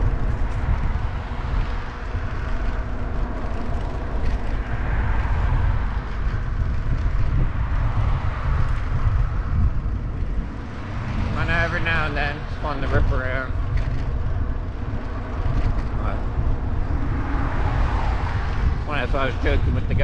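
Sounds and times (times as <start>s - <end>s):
wind rumble on microphone: 0.0s - 20.0s
tires hissing on road: 15.2s - 20.0s.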